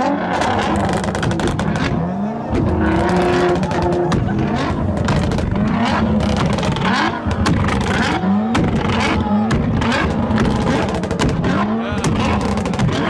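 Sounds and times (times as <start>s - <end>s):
car engines revving: 0.0s - 13.0s
sharp cracks: 0.3s - 13.0s.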